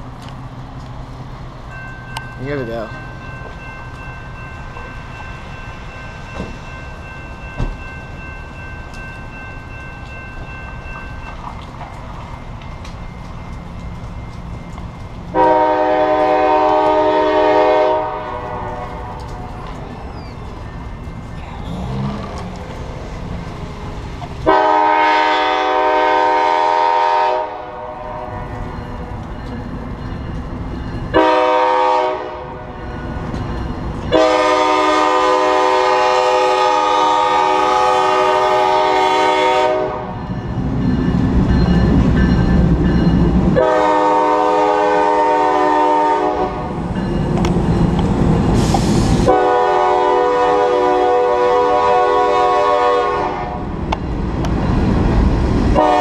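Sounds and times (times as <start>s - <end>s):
train rumble: 0.0s - 56.0s
locomotive air horn blasts: 15.3s - 19.5s, 24.4s - 28.5s, 31.2s - 32.6s, 34.1s - 40.2s, 43.6s - 46.7s, 49.2s - 53.6s, 55.8s - 56.0s.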